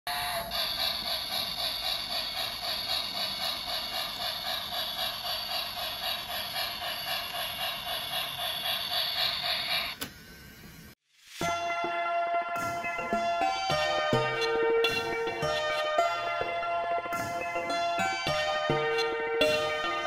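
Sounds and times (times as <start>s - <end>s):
toy train motor whirring: 0.1s - 11.0s
rhythmic ticking: 0.5s - 9.8s, 11.4s - 20.0s.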